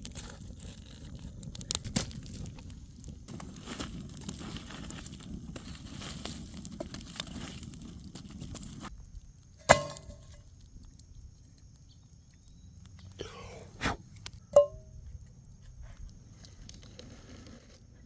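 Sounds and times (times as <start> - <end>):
dense crackling and rustling: 0.0 - 8.9
sharp ringing clink: 14.6 - 14.9.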